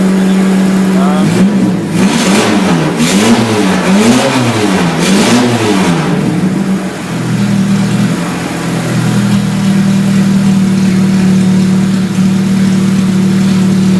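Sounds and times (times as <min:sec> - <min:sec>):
car engine revving and idling: 0:00.0 - 0:13.9.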